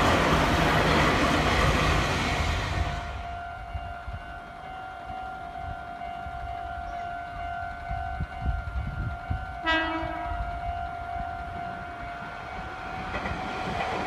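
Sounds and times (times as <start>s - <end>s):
train rumbling: 0.0s - 14.0s
train horn blast: 9.6s - 10.9s.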